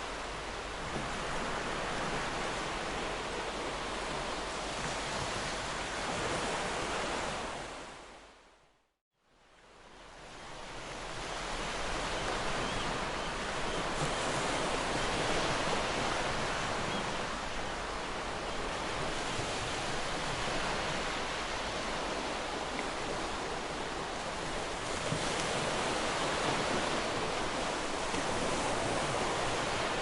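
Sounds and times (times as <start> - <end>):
ocean waves breaking on beach: 0.0 - 8.5, 9.5 - 30.0.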